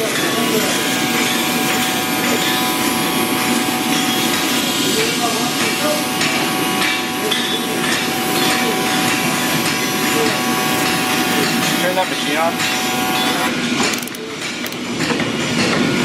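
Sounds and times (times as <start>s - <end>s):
workshop din: 0.0s - 16.0s.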